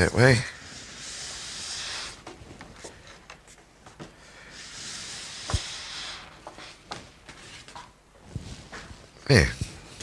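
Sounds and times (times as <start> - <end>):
paper swishing: 4.6 - 6.8.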